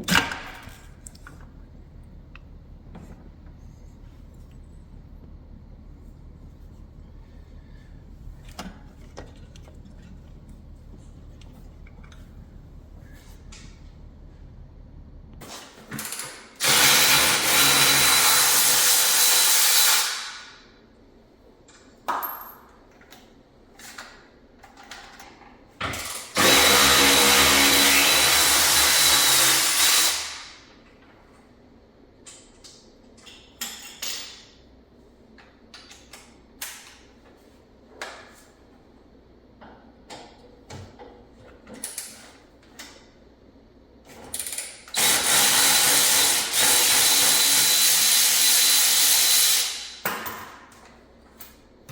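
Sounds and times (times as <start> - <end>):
tools and metal parts clinking: 32.2 - 34.6.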